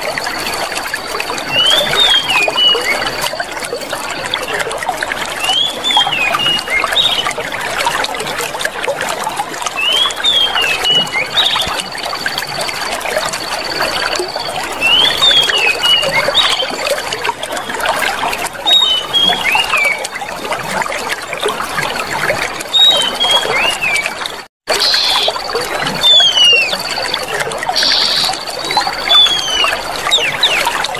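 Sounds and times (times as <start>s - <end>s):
water running and trickling: 0.0s - 30.9s
bird whistling phrases: 22.7s - 24.1s, 24.8s - 27.1s, 27.8s - 30.8s.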